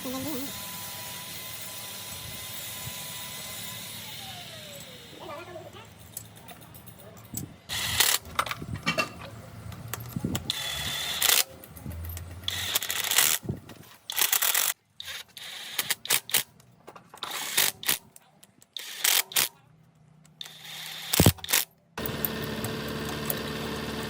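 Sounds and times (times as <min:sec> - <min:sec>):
metal parts clanking: 0:03.5 - 0:19.4
ratchet clicking: 0:09.9 - 0:13.5, 0:14.1 - 0:16.5, 0:18.6 - 0:19.5.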